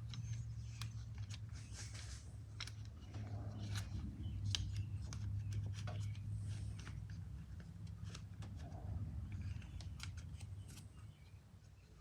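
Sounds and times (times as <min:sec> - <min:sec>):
steady low hum: 0:00.0 - 0:12.0
plastic parts clicking and tapping: 0:02.5 - 0:10.9.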